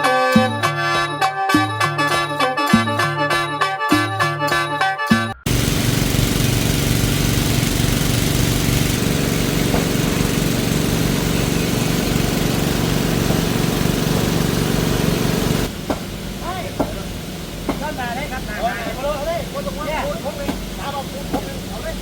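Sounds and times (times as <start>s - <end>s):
engine-driven water pump running: 5.5s - 22.0s.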